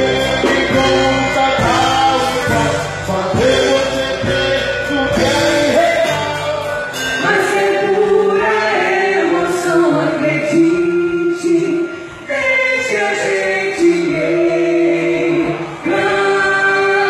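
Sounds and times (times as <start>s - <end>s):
bass and beat: 0.0s - 7.0s
group of voices singing: 0.0s - 17.0s.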